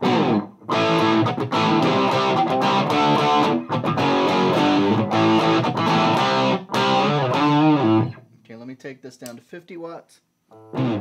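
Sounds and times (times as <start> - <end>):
distorted electric guitar chords: 0.0 - 8.2, 10.5 - 11.0.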